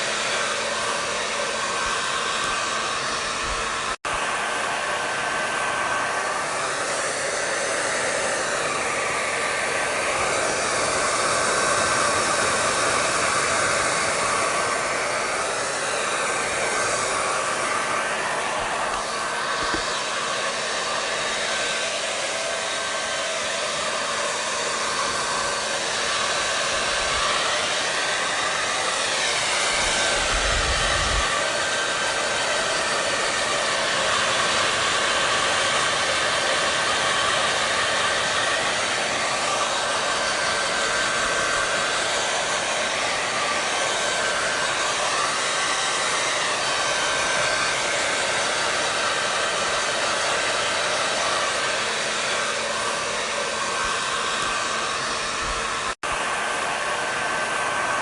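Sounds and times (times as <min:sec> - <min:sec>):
hair dryer running: 0:00.0 - 0:58.0.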